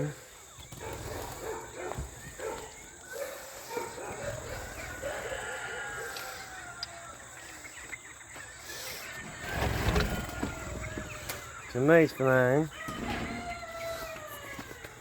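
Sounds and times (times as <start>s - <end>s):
birds chirping and calling: 0.0s - 15.0s
long falling bird call: 4.5s - 15.0s.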